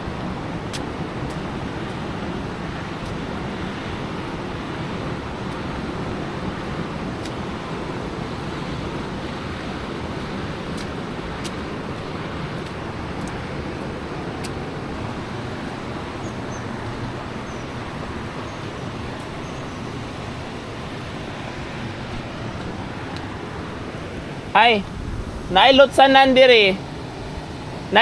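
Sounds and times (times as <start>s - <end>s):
rain: 0.0s - 28.0s
street noise: 0.0s - 28.0s.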